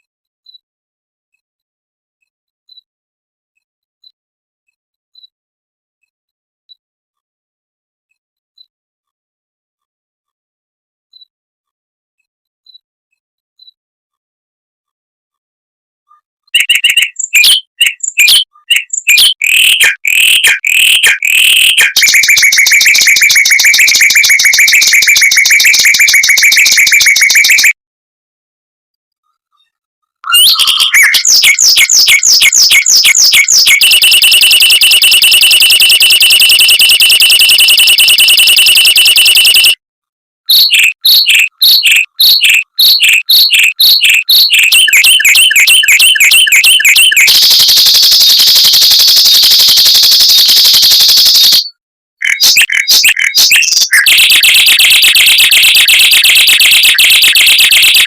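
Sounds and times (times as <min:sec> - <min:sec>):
mockingbird song with trills: 0:16.6 - 0:27.8, 0:30.2 - 0:39.8, 0:40.5 - 0:58.0.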